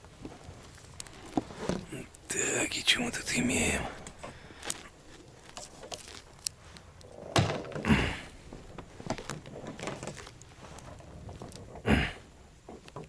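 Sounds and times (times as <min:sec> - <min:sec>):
small clicks and knocks: 0:12.6 - 0:13.0.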